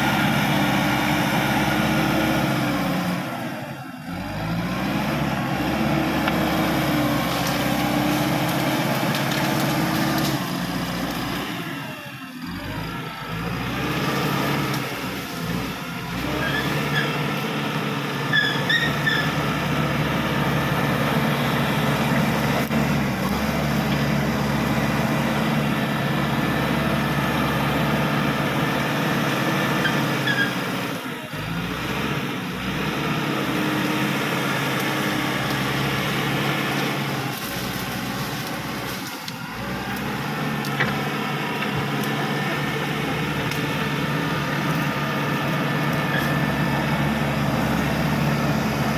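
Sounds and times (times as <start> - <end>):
bulldozer diesel engine running: 0.0 - 48.9
short high squeaks: 18.3 - 19.4.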